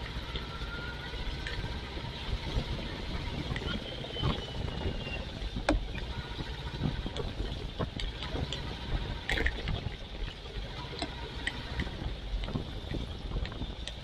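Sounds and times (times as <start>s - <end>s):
motorcycle engine rumble: 0.0s - 14.0s
wind and rain noise: 0.0s - 14.0s
raindrops clicking on microphone: 1.2s - 14.0s.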